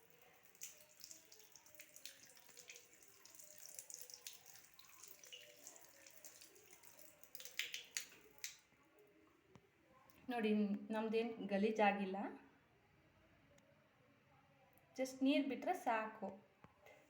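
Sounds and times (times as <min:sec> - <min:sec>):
tap water running and splashing: 0:00.0 - 0:08.6.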